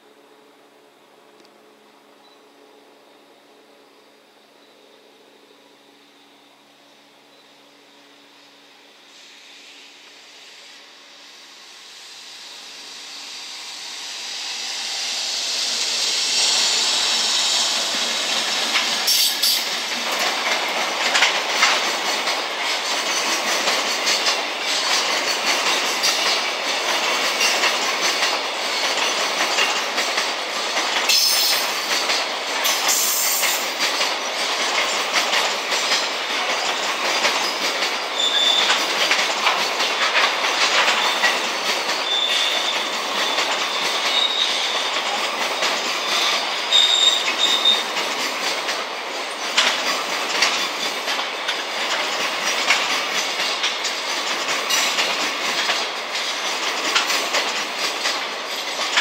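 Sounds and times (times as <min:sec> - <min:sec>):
train rail noise: 0:00.0 - 0:59.0
wheel clacks over rail joints: 0:18.0 - 0:59.0
high wheel squeals: 0:37.4 - 0:38.9, 0:42.0 - 0:48.0.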